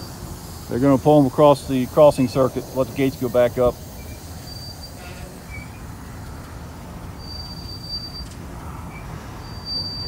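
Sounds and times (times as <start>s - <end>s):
train wheels rumbling on rail: 0.0s - 10.0s
high wheel squeal: 2.6s - 6.2s, 7.0s - 10.0s.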